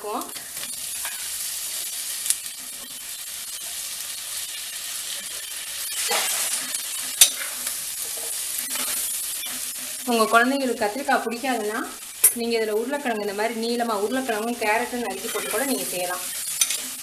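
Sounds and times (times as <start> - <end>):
eggplant sizzling in hot oil: 0.0 - 17.0
metal spatula clinking on pot: 7.2 - 7.5, 15.2 - 15.7, 16.4 - 16.9.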